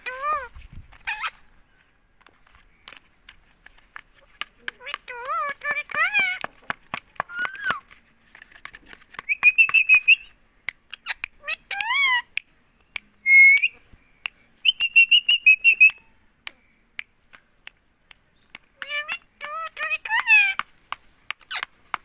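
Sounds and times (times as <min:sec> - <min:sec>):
parakeet chattering trills: 0:00.0 - 0:01.5, 0:04.8 - 0:06.5, 0:07.3 - 0:07.8, 0:10.9 - 0:12.4, 0:18.8 - 0:20.7.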